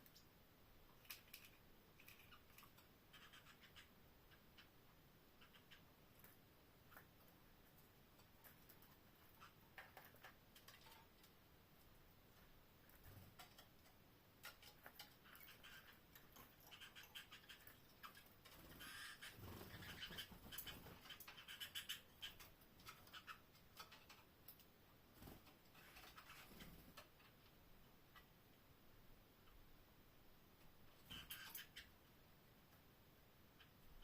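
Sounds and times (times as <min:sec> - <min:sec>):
canaries moving in cage: 0:05.4 - 0:11.4, 0:12.3 - 0:27.6, 0:31.0 - 0:31.9.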